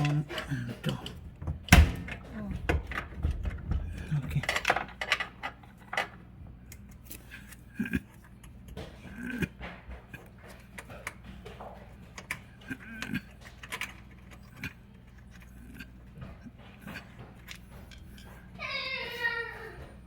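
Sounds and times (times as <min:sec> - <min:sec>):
hand tools clicking on metal: 0:00.0 - 0:01.2
steady low hum: 0:00.0 - 0:20.0.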